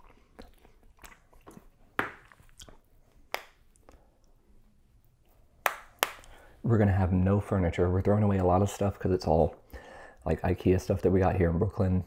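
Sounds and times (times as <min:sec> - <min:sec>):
fingers being licked: 0:00.0 - 0:04.4
lip smacks and chewing: 0:00.0 - 0:04.4.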